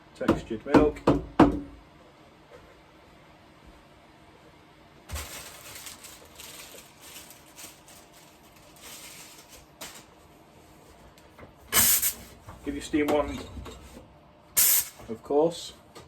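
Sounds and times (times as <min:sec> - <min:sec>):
loud hiss burst: 0:11.7 - 0:12.2, 0:14.6 - 0:15.0.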